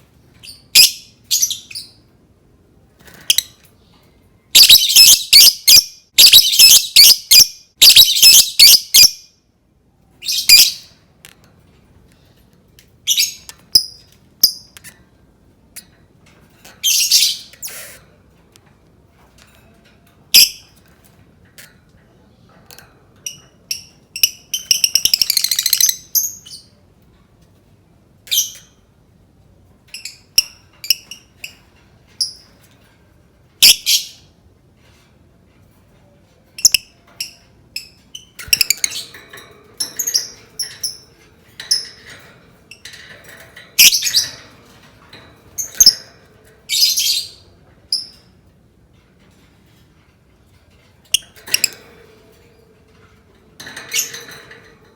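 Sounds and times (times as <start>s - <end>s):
bird chirping and trilling: 0.4s - 2.1s, 4.6s - 9.2s, 10.2s - 11.0s, 13.1s - 14.8s, 16.8s - 17.9s, 20.4s - 20.7s, 23.3s - 26.7s, 33.6s - 34.3s, 36.6s - 39.2s, 39.8s - 42.1s, 43.7s - 44.8s, 45.5s - 48.2s.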